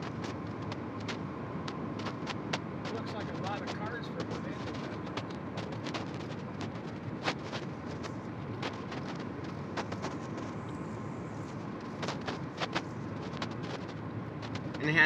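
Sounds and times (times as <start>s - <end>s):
wheels clacking on rails: 0.0s - 10.7s, 11.4s - 15.0s.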